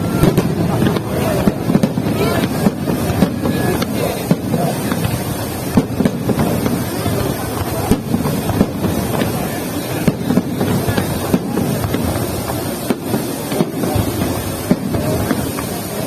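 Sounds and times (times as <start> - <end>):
crowd voices: 0.0 - 16.0
fireworks bangs: 0.0 - 16.0.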